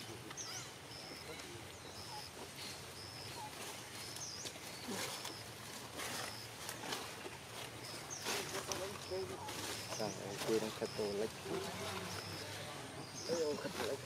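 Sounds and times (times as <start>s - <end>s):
bird chirps: 0.0s - 14.0s
rustling: 0.0s - 14.0s.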